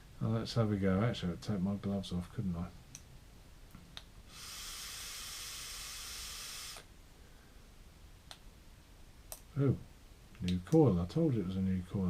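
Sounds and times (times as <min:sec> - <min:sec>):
vape tank hissing: 0:04.3 - 0:06.9.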